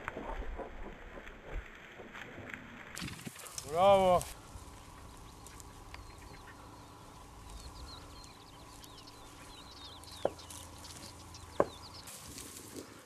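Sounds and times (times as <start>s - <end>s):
faint wind: 0.0s - 13.0s
small birds chirping: 3.0s - 12.9s
sharp knocks: 11.6s - 11.8s.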